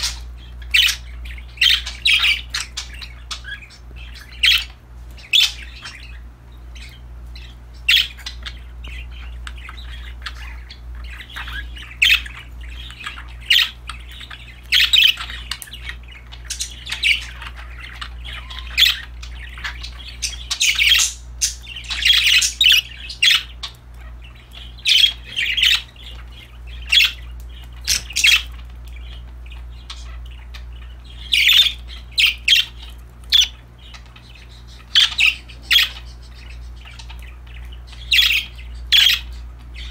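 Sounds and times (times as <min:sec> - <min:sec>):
budgerigars chirping: 0:00.0 - 0:39.9
steady low hum: 0:00.0 - 0:39.9.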